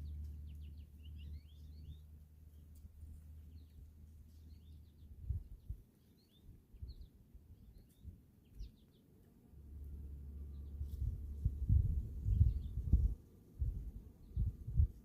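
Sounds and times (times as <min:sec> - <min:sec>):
songbirds chirping: 0:00.0 - 0:15.0
low hum: 0:09.5 - 0:15.0.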